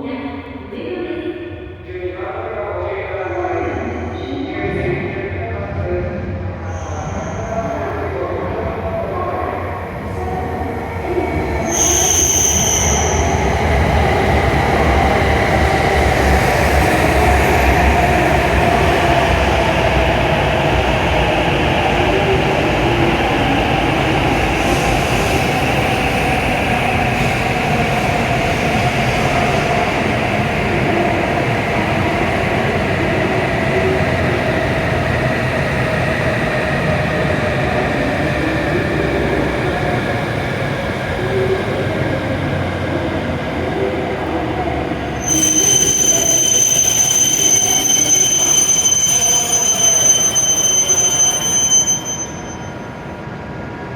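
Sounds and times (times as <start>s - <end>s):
train rumbling and braking: 1.4s - 53.9s
brief high tone: 45.2s - 52.9s.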